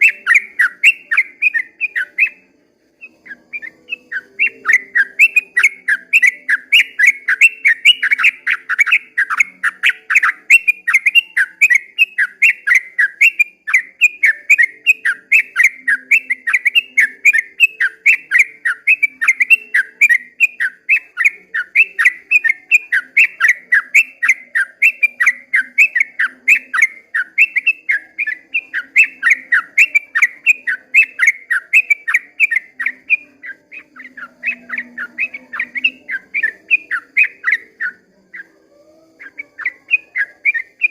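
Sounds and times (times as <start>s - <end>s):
bird singing bubbling notes: 0.0s - 2.4s.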